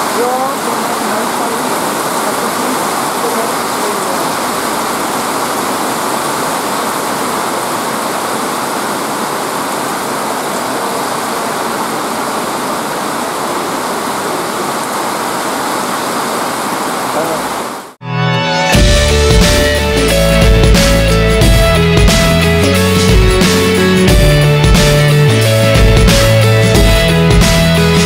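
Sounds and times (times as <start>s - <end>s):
heavy rain on pavement: 0.0s - 18.0s.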